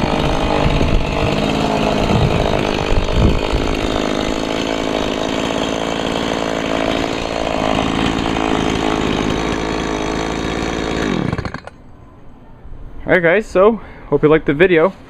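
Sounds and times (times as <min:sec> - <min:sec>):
chainsaw engine running: 0:00.0 - 0:11.8.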